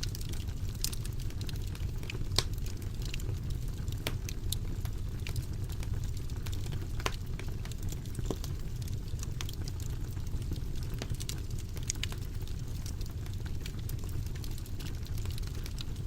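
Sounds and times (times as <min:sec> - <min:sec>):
fire crackling: 0:00.0 - 0:16.0.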